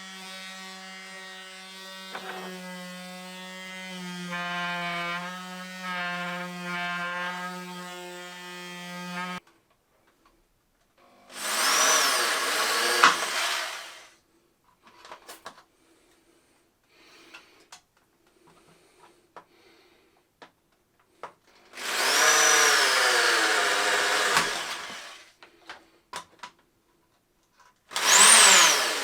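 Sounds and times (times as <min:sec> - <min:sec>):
power tool drilling or cutting: 0:00.0 - 0:09.4, 0:11.3 - 0:14.1, 0:21.8 - 0:25.3, 0:27.9 - 0:29.0
electric motor hum: 0:28.0 - 0:29.0.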